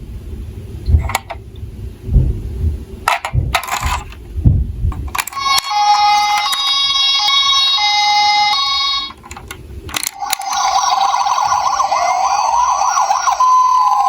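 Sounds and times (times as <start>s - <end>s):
toy siren hi-lo two-tone: 5.3s - 9.2s, 10.0s - 14.0s
toy siren rising wail: 5.3s - 9.2s, 10.0s - 14.0s
toy siren warbling yelp: 5.3s - 9.2s, 10.1s - 14.0s.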